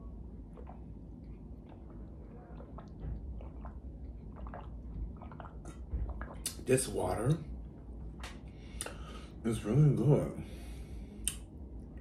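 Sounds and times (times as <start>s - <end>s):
person chewing wetly: 0.3s - 6.6s.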